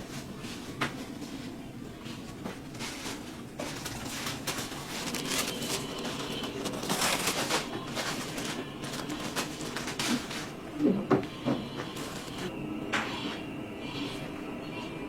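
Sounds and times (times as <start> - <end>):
knitting machines clattering: 2.7 - 10.6, 11.9 - 12.5.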